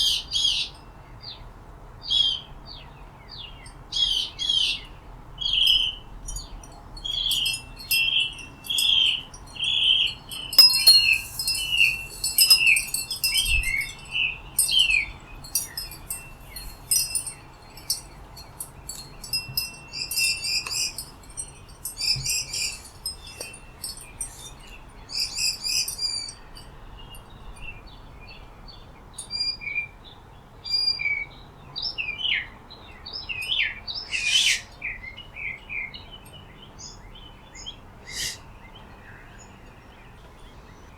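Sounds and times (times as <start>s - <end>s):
high bird chirps and trills: 3.6s - 27.1s.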